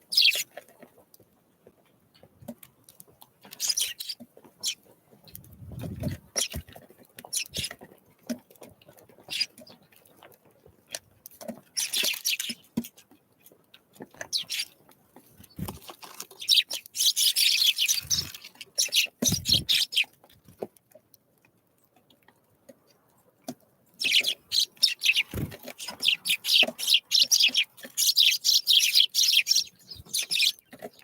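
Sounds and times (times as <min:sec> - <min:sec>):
birds chirping: 0:00.0 - 0:00.5, 0:03.4 - 0:06.7, 0:07.3 - 0:07.8, 0:09.2 - 0:09.8, 0:11.8 - 0:12.7, 0:14.2 - 0:14.8, 0:15.4 - 0:20.2, 0:24.0 - 0:31.0
wings fluttering: 0:03.6 - 0:07.8, 0:15.4 - 0:20.1, 0:24.0 - 0:31.0.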